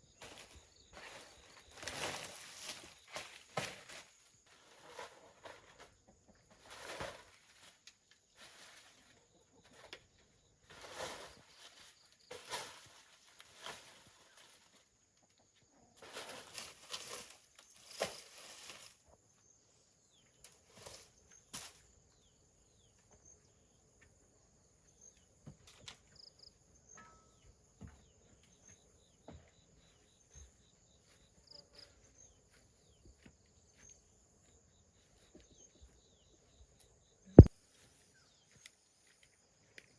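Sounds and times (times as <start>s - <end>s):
rustling and scuffing: 0.1s - 9.9s, 10.6s - 14.9s, 16.0s - 19.2s.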